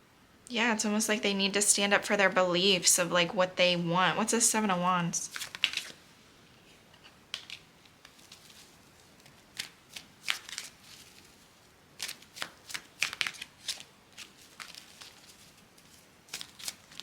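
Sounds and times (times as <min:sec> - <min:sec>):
cards being shuffled: 0:05.3 - 0:06.0, 0:07.3 - 0:11.4, 0:12.0 - 0:17.0.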